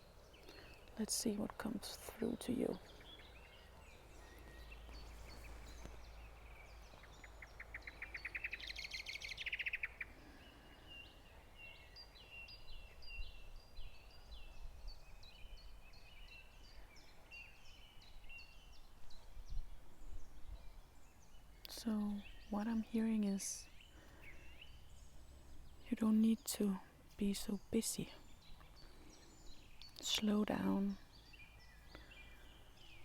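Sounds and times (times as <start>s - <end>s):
wild birds singing: 0.0s - 33.0s.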